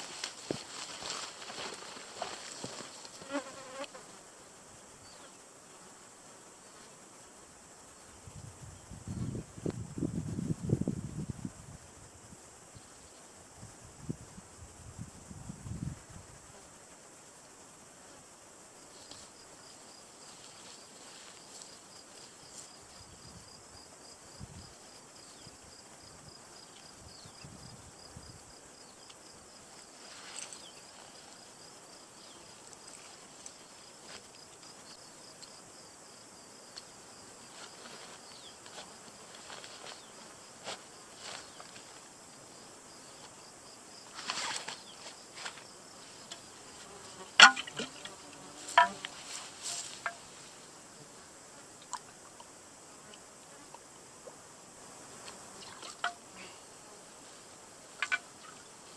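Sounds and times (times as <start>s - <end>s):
insects chirring: 0.0s - 58.9s
small clicks and knocks: 58.0s - 58.3s.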